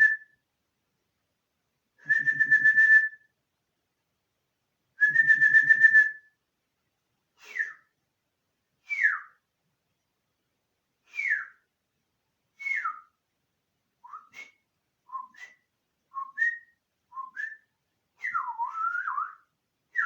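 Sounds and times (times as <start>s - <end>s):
person whistling: 0.0s - 0.4s, 2.0s - 3.3s, 5.0s - 6.3s, 7.4s - 7.9s, 8.9s - 9.4s, 11.1s - 11.6s, 12.6s - 13.1s, 14.0s - 15.6s, 16.2s - 19.4s.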